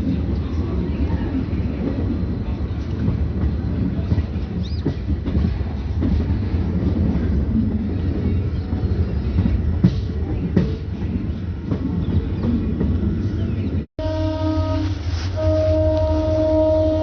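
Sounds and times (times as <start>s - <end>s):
train rumbling along track: 0.0s - 17.0s.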